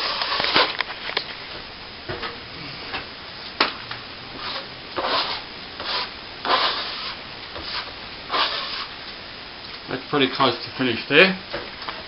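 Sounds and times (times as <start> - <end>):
trowel scraping cement: 0.0 - 0.8, 4.4 - 8.9.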